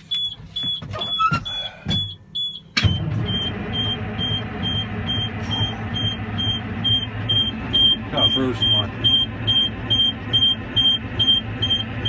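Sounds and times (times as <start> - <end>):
starter cranking diesel engine: 2.8 - 12.0
warning buzzer beeping: 3.3 - 11.9.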